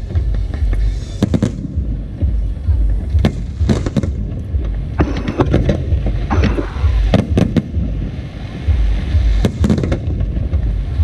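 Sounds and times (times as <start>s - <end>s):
steady low rumble: 0.0s - 11.0s
fireworks shells bursting: 5.0s - 7.8s.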